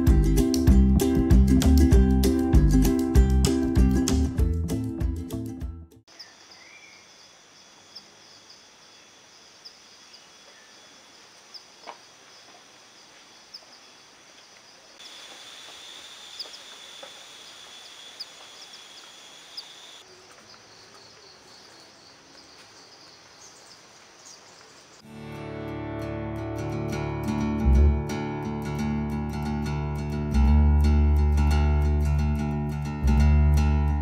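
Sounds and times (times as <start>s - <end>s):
acoustic guitar music: 0.0s - 6.0s, 25.0s - 34.0s
small birds chirping: 6.1s - 11.8s, 13.1s - 25.1s.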